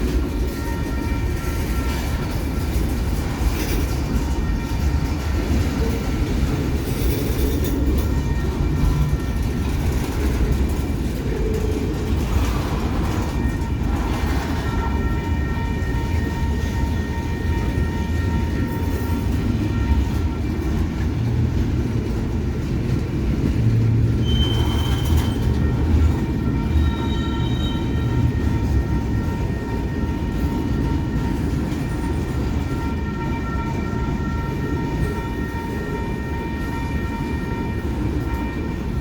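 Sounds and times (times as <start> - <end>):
train wheels rumbling on rails: 0.0 - 39.0
wheels squealing: 24.2 - 25.6.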